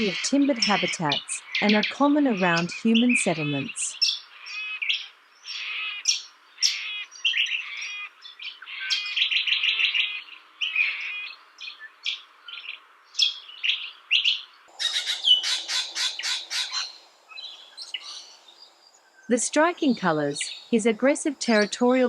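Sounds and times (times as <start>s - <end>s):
parrots calling shrilly: 4.0s - 11.4s, 14.7s - 18.4s.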